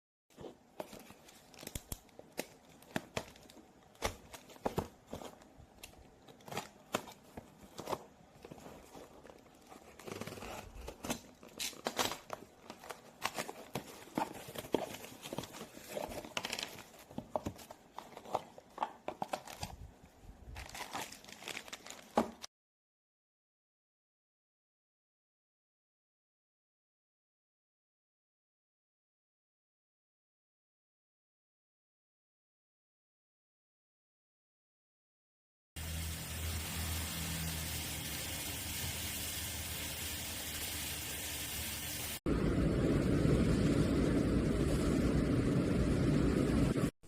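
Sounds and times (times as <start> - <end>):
packaging crinkling and tearing: 0.8 - 19.9, 20.5 - 22.5.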